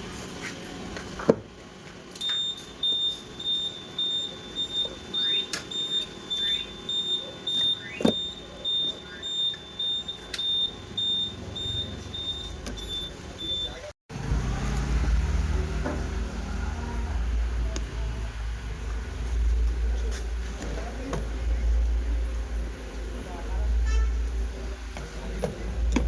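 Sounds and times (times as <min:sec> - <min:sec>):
high-pitched electronic beeping: 0:02.2 - 0:13.9.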